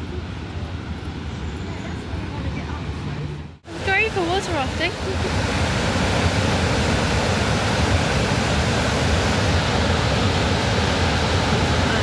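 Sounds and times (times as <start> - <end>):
fast-flowing white water rushing: 3.7 - 12.0.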